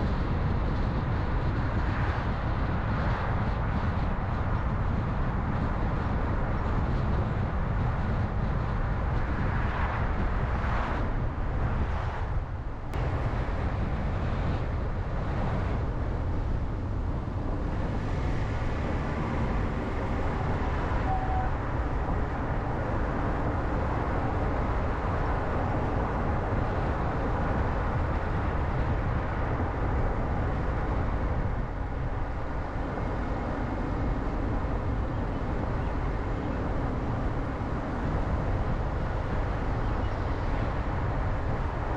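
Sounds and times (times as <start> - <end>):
car driving on road: 0.0 - 41.9.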